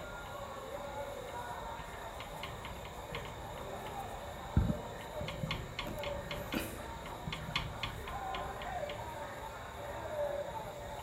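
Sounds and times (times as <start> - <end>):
faint high whine: 0.0 - 11.0
irregular ticking clicks: 5.0 - 9.1.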